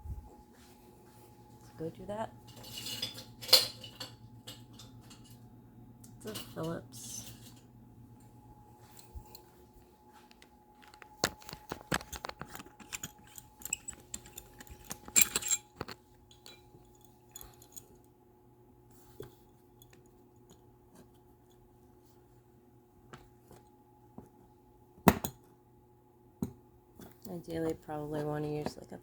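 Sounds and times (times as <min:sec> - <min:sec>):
faint steady hum: 0:00.0 - 0:29.0
plastic parts clicking and rattling: 0:10.8 - 0:16.0.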